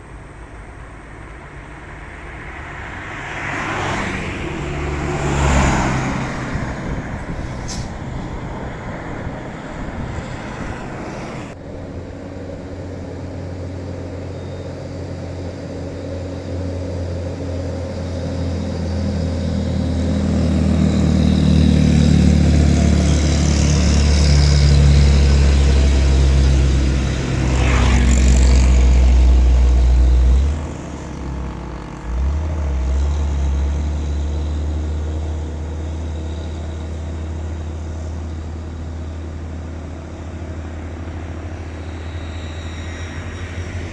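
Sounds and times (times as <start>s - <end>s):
diesel truck engine pulling uphill: 0.0s - 43.9s.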